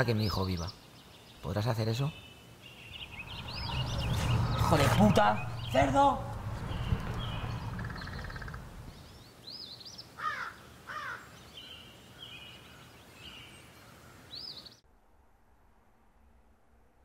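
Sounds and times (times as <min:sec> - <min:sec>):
birds chirping: 0:00.0 - 0:14.8
loud falling bird calls: 0:06.4 - 0:11.4.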